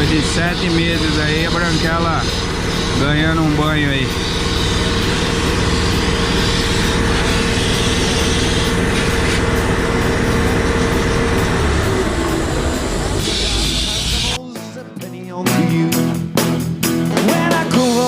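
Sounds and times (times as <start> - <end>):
pressure washer spraying water: 0.0 - 14.4.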